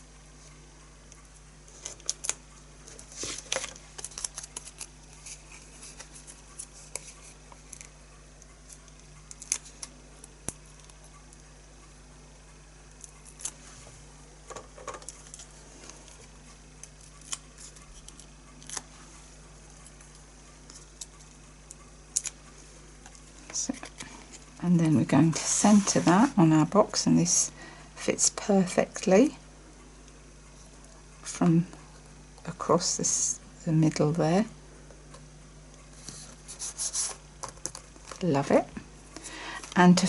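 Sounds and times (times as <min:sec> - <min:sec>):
faint steady hum: 0:00.0 - 0:40.0
paper and card rustling: 0:01.7 - 0:08.0, 0:25.2 - 0:26.4, 0:36.0 - 0:38.3.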